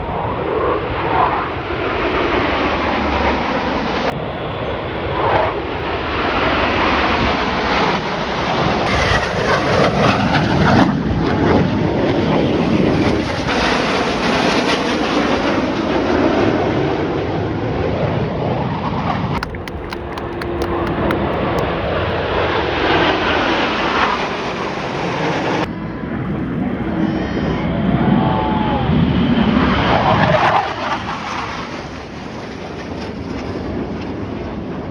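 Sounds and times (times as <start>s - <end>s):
aircraft engines flying past: 19.4s - 22.4s.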